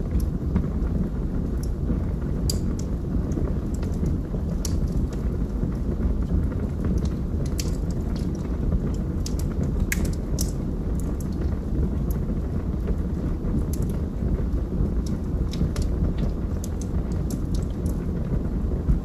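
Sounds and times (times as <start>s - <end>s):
fire flames rumbling: 0.0s - 19.0s
wood crackling and popping: 0.0s - 19.0s.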